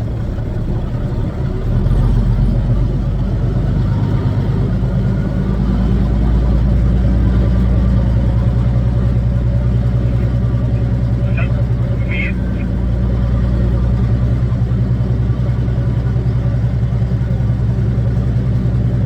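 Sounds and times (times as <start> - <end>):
diesel engine droning: 0.0 - 19.0.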